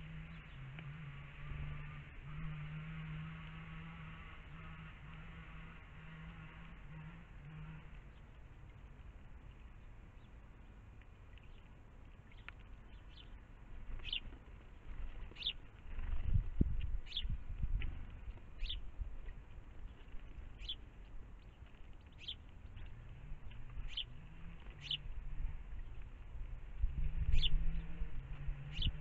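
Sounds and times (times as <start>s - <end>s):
small bird chirping: 9.5s - 26.1s, 27.1s - 29.0s.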